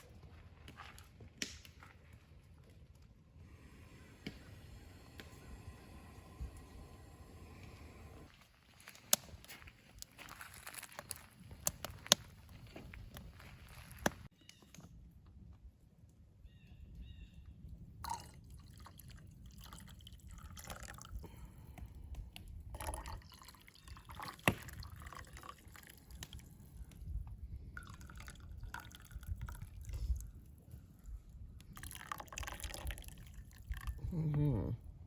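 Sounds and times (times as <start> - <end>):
liquid pouring and dripping: 18.0 - 21.5, 22.4 - 27.1, 27.7 - 30.6, 31.6 - 34.0.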